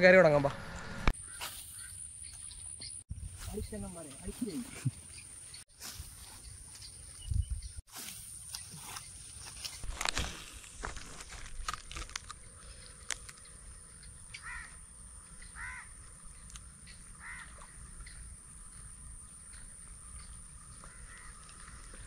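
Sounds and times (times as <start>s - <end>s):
bird harsh calls: 1.2s - 3.0s, 14.3s - 14.8s, 15.4s - 16.0s.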